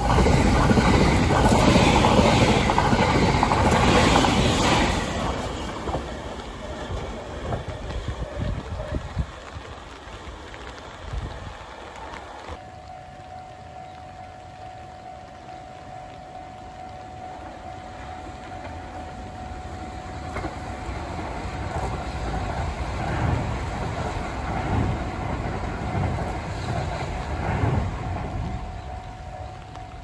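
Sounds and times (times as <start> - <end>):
electric train passing: 0.0 - 30.0
steady high tone: 12.6 - 22.7.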